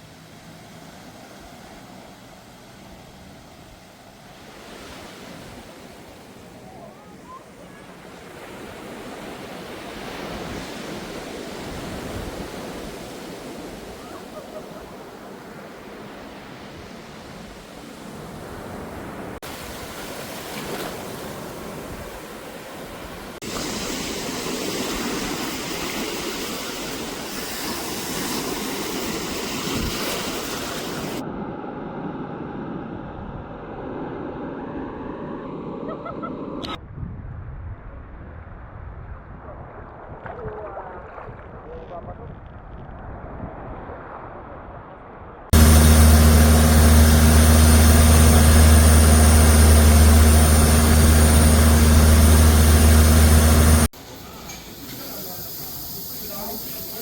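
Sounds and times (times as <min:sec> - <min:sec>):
rushing water: 0:00.0 - 0:31.2, 0:45.6 - 0:57.0
wind noise: 0:01.2 - 0:57.0.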